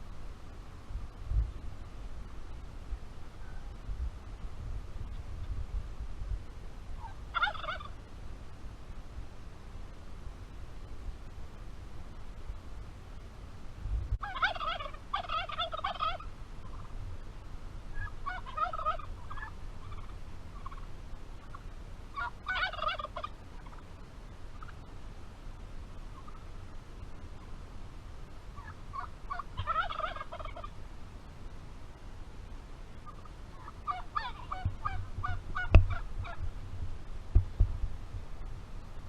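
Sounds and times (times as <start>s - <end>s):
turkey gobbling: 7.0s - 8.0s, 14.2s - 16.9s, 17.9s - 24.9s, 26.1s - 26.5s, 28.6s - 30.8s, 33.0s - 36.4s.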